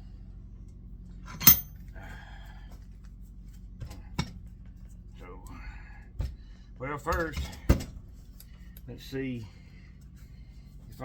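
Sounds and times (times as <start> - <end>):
metal clanks at a vise: 1.3 - 1.8.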